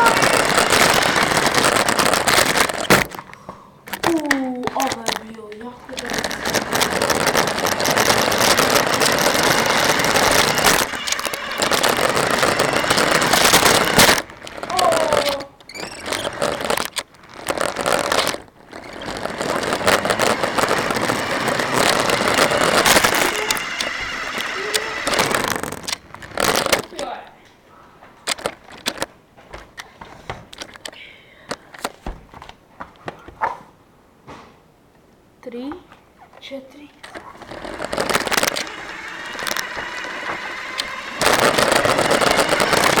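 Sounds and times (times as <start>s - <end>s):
sharp cracks: 0.0s - 27.2s, 37.0s - 43.0s
rc car wheels crunching and rattling: 0.0s - 27.3s, 28.2s - 32.0s, 36.4s - 43.0s.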